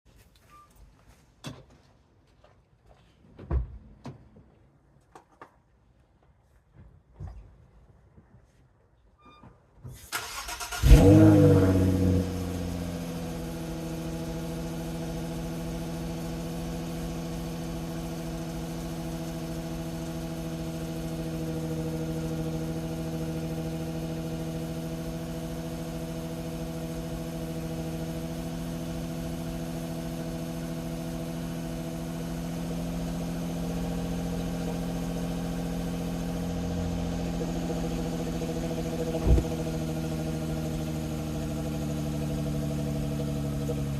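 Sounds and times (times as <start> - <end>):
car engine idling: 10.2 - 43.9.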